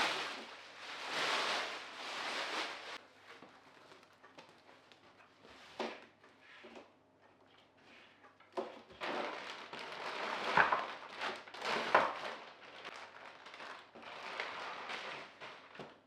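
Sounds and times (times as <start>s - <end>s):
packaging crinkling and rustling: 0.0s - 5.0s, 8.6s - 16.0s.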